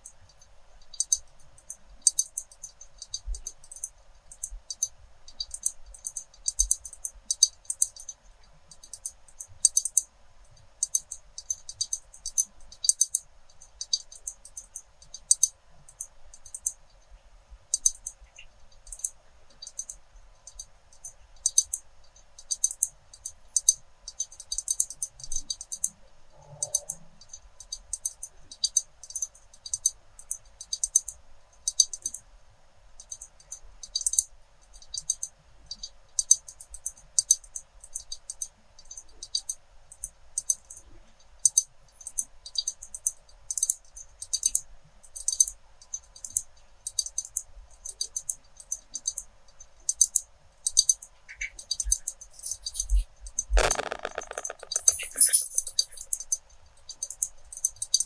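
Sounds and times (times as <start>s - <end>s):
glass and pens tapping: 53.6s - 56.0s.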